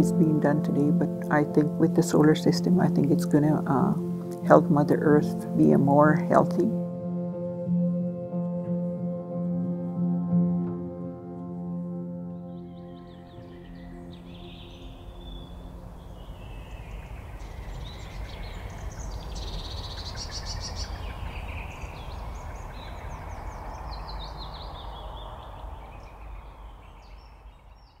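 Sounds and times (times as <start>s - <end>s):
bird trill: 12.4s - 28.0s
wild birds calling: 12.4s - 28.0s.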